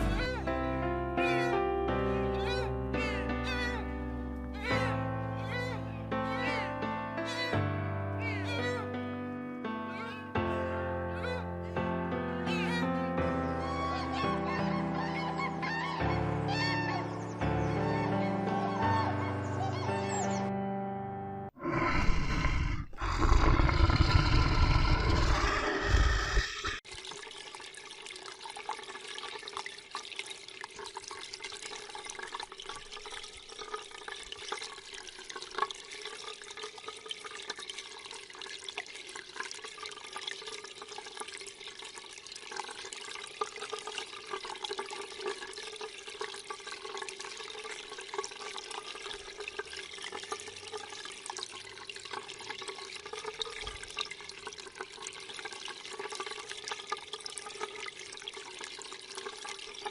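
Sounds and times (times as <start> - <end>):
water running: 21.6 - 59.9
small splashes and drips: 26.8 - 59.9.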